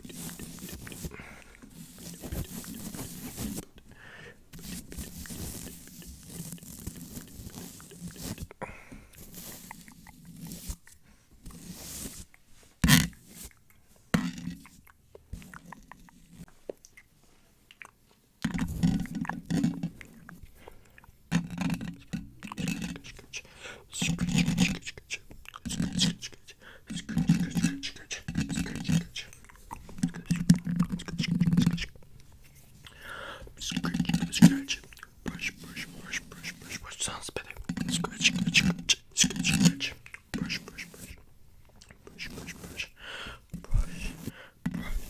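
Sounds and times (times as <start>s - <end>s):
microphone brushing and scratching: 0.0s - 3.8s, 4.5s - 8.6s, 9.2s - 13.6s, 18.4s - 20.5s, 21.3s - 32.8s, 33.5s - 41.3s, 42.0s - 45.0s
lip and tongue clicks: 14.6s - 17.1s, 17.7s - 18.2s
wet mouth clicks and smacks: 16.7s - 17.1s, 17.7s - 18.0s.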